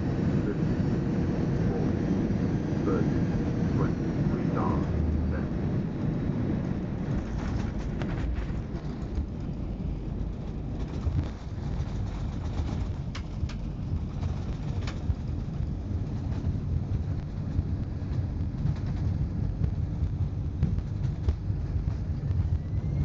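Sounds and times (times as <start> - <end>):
aircraft cabin rumble: 0.0 - 23.0
sharp clicks or rattles: 10.4 - 15.4.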